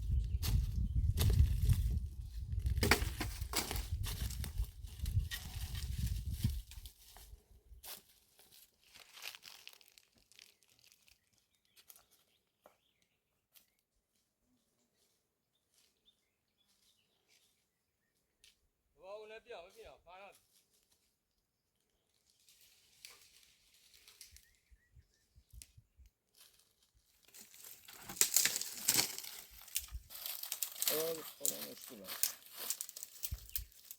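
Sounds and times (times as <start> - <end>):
rustling crinkling handling noise: 2.9 - 11.3, 26.4 - 33.9
faint rustling and crinkling: 20.3 - 24.6, 26.2 - 33.9.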